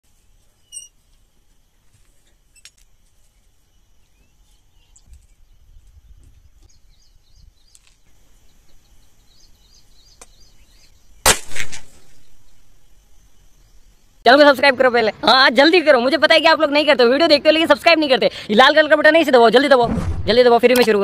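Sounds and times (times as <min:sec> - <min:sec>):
small bird chirping: 0:00.4 - 0:11.3
low rumble: 0:19.8 - 0:20.8.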